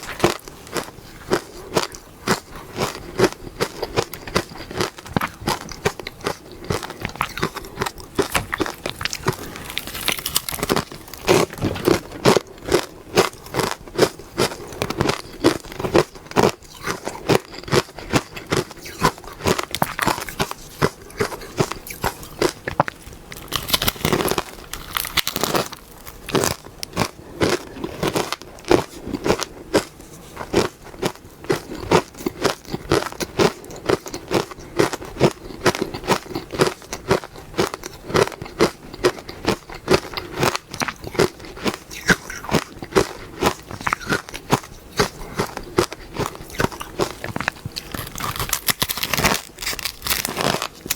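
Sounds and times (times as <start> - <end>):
ice being crunched and chewed: 0.0 - 50.9.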